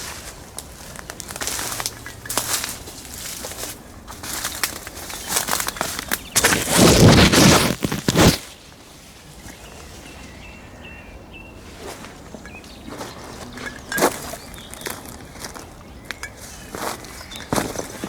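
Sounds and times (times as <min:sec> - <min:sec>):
footsteps with rustling: 0:00.0 - 0:08.5.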